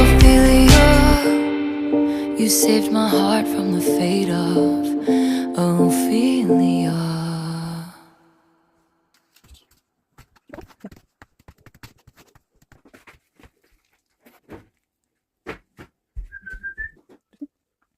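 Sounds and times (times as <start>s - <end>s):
crunching and chewing food: 9.2s - 15.2s.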